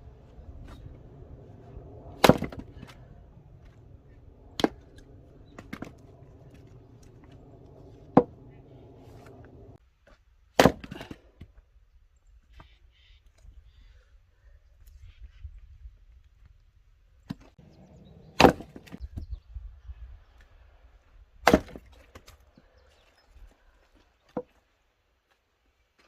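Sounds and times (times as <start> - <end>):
low engine hum: 0.0 - 9.8
axe chopping firewood: 0.6 - 9.8, 10.6 - 11.2, 17.7 - 19.0, 21.4 - 22.2.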